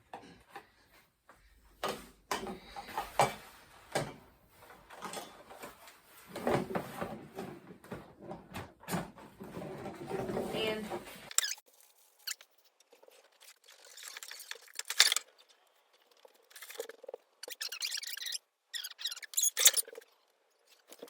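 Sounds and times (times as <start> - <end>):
plastic parts knocking and clicking: 1.8 - 11.6.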